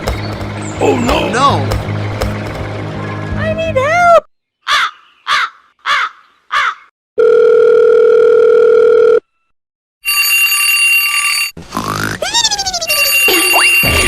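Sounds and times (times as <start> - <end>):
crow-like caws: 4.6 - 6.9.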